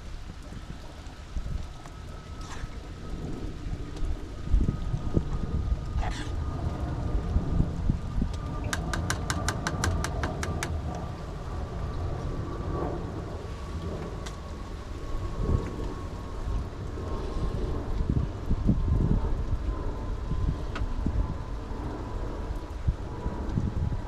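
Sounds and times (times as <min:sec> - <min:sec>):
steady rain: 0:00.0 - 0:24.0
run of clicks: 0:08.3 - 0:10.8.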